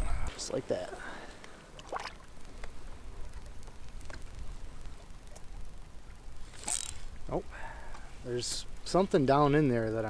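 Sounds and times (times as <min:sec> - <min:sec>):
faint background hiss: 0:00.0 - 0:10.0
water lapping on hull: 0:01.4 - 0:08.2.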